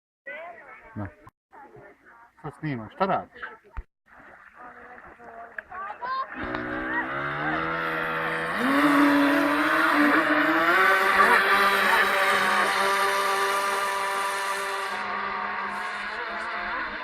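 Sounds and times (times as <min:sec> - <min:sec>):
electric motors whining: 0:06.4 - 0:17.0.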